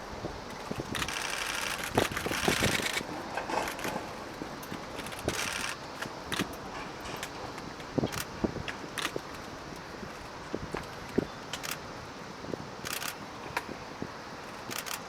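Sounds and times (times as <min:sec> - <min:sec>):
camera shutter clicking: 0:00.9 - 0:03.0, 0:05.2 - 0:06.5, 0:12.8 - 0:13.2, 0:14.7 - 0:15.0.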